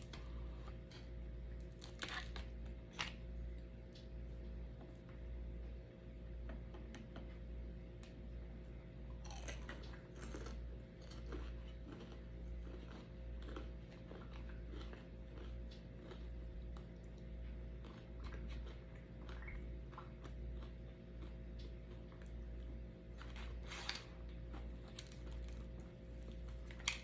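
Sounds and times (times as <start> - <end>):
steady low hum: 0.0 - 27.0
chewing with mouth clicks: 9.2 - 27.0.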